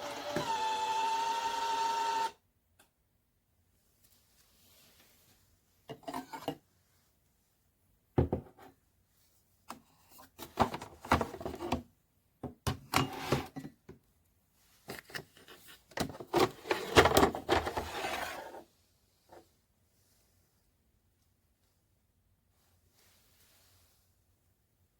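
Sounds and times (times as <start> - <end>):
objects scraping and knocking: 5.9 - 6.6, 10.1 - 11.9, 12.7 - 13.8, 14.9 - 18.6.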